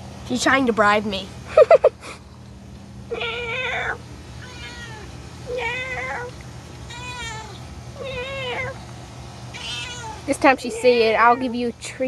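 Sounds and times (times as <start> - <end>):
cat meowing: 3.1 - 6.3, 6.9 - 8.8, 9.5 - 11.6.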